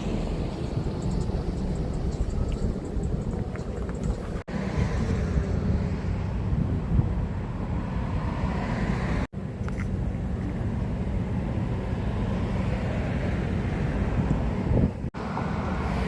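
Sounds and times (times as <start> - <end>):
low outdoor rumble: 0.0 - 8.4
wind buffeting microphone: 0.0 - 9.3, 10.0 - 15.2.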